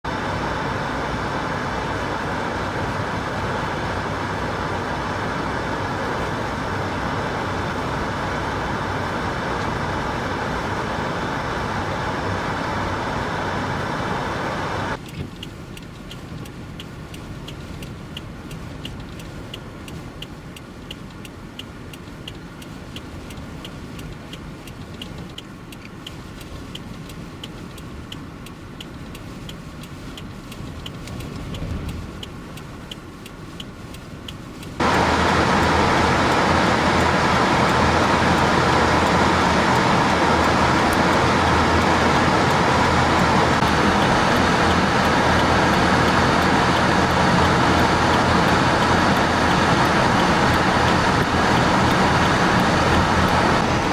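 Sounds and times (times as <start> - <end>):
loud steady rush of noise: 0.0 - 15.0, 34.6 - 53.9
vehicle hum: 0.0 - 53.9
regular ticking clicks: 0.1 - 53.9.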